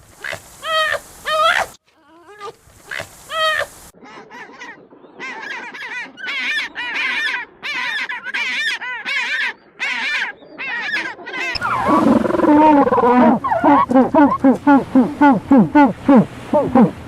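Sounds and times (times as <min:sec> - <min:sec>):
birds honking: 0:05.2 - 0:17.0.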